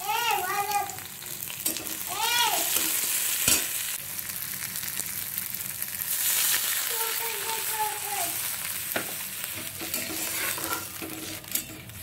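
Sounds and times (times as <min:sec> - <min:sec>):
vegetables sizzling in hot oil: 0:00.0 - 0:12.0
spatula scraping a wok: 0:08.9 - 0:12.0.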